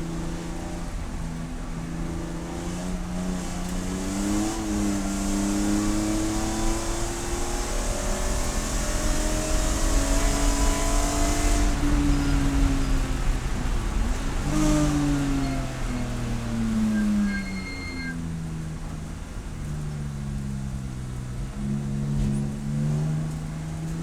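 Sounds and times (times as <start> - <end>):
race car engine revving: 0.0 - 18.2
wind and road noise: 0.0 - 24.0.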